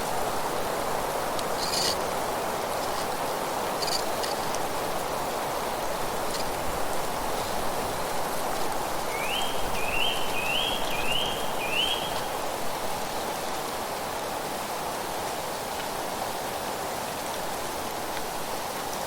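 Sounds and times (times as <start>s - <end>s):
songbird singing: 8.8s - 12.6s.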